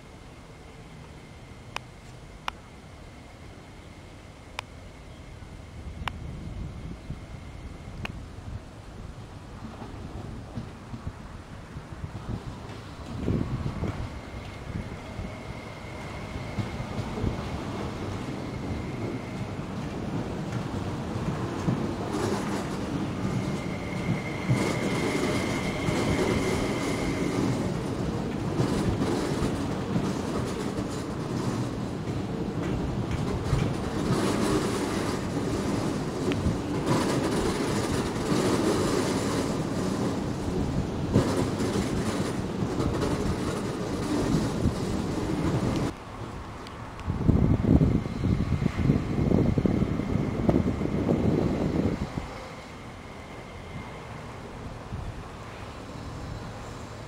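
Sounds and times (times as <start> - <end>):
wheels clattering over rails: 19.7 - 46.0.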